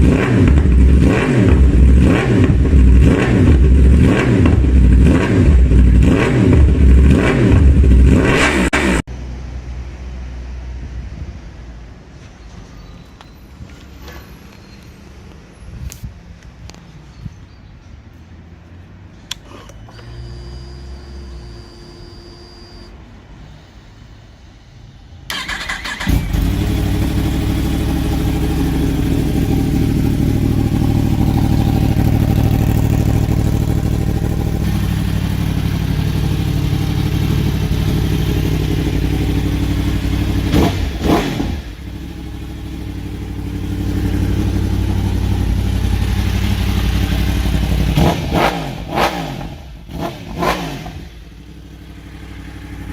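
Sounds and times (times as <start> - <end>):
motorcycle engine idling: 25.4 - 41.0, 41.6 - 48.0, 51.0 - 52.9.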